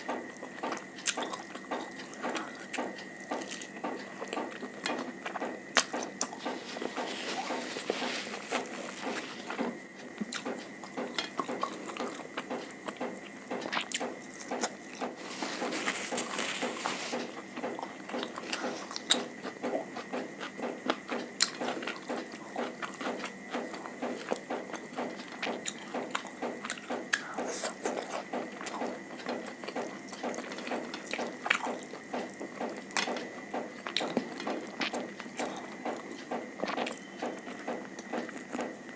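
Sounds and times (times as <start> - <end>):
crackly chewing: 0.0 - 38.9.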